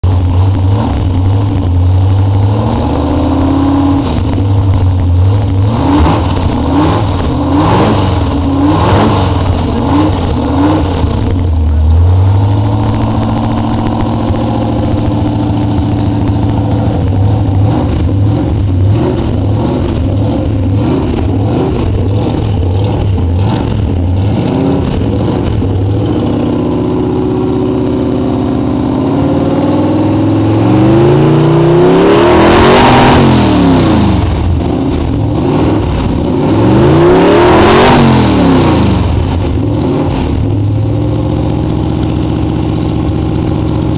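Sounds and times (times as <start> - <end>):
car engine idling and revving: 0.0 - 43.9.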